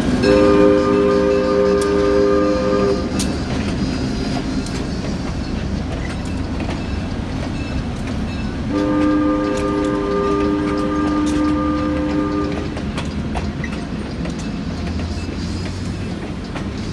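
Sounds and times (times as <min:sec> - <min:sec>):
train horn: 0:00.0 - 0:03.3, 0:08.6 - 0:12.8
train rumbling past: 0:00.0 - 0:16.9
wheels clicking on rails: 0:00.0 - 0:16.9.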